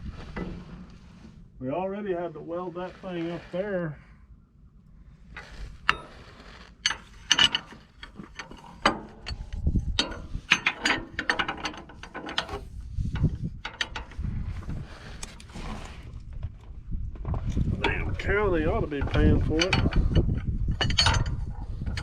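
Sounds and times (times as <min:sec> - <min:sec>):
low rumbling: 0:00.0 - 0:11.6, 0:12.6 - 0:22.0
metal clanking on metal: 0:05.7 - 0:14.8, 0:17.3 - 0:22.0
metallic clicks and ratcheting: 0:06.8 - 0:14.2.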